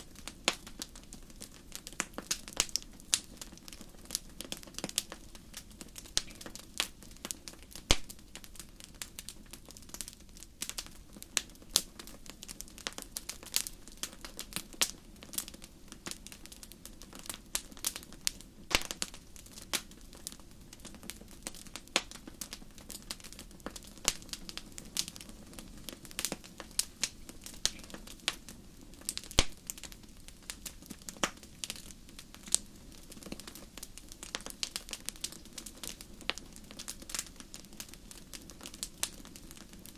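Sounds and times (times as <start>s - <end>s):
fire crackling and popping: 0.0s - 39.9s
flames rushing: 16.6s - 39.9s.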